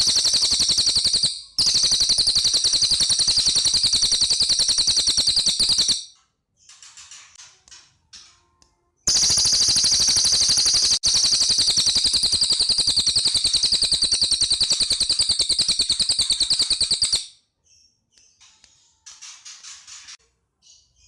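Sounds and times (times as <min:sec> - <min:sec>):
bird singing rattling trill: 0:00.0 - 0:07.0, 0:09.1 - 0:17.9.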